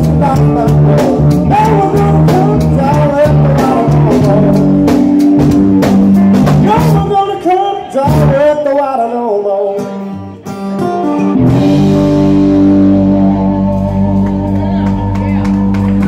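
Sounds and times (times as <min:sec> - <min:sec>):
drum strikes: 0:00.0 - 0:07.0
blues band playing: 0:00.0 - 0:16.0.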